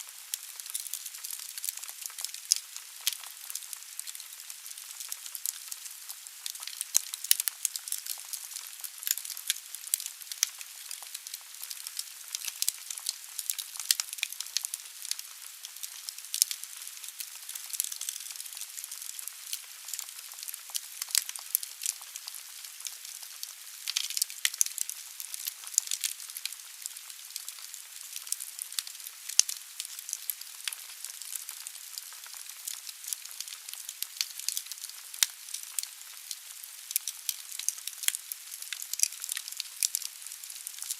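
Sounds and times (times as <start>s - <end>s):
wood fire crackling and popping: 0.1s - 40.9s.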